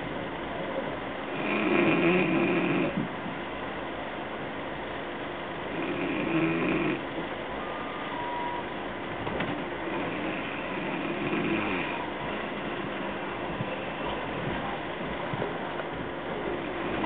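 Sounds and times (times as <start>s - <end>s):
train running noise inside carriage: 12.0s - 17.0s.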